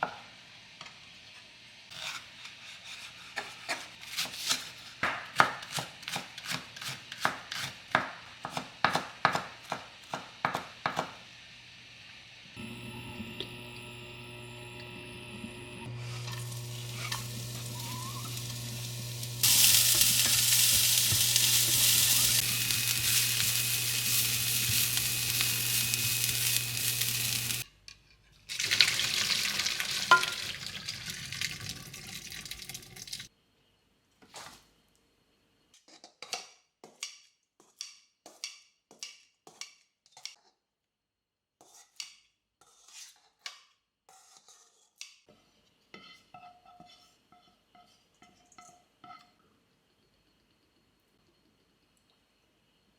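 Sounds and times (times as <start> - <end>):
food sizzling in a pan: 0.0 - 2.9, 6.5 - 27.7, 28.5 - 33.3
low hum: 12.6 - 27.6.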